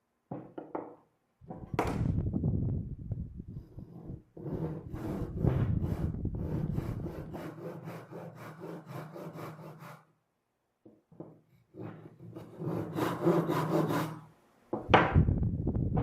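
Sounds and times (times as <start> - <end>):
hand saw cutting wood: 3.8 - 10.1, 11.8 - 14.3.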